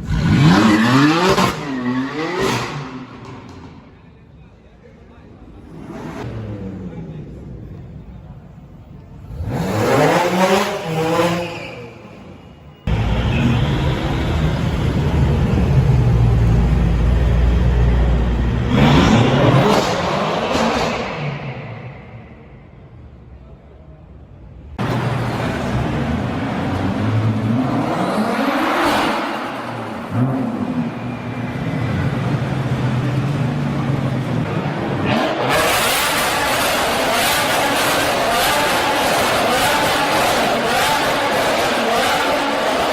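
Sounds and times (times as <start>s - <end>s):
car engine revving: 9.2s - 11.9s, 12.9s - 22.0s, 24.8s - 42.9s
loud rush of noise: 24.6s - 42.9s.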